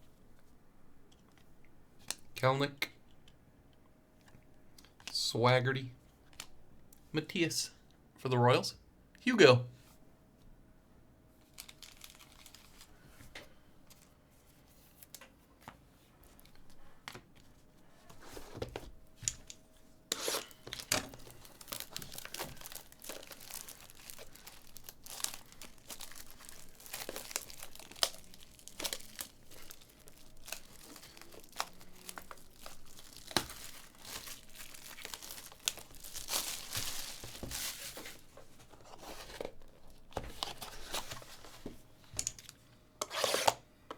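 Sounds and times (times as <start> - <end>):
wrappers tearing and crinkling: 11.4 - 13.0, 19.4 - 38.3.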